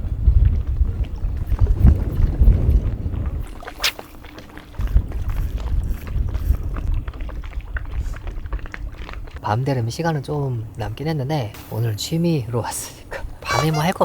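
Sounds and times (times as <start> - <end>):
strong wind buffeting microphone: 0.0 - 10.1.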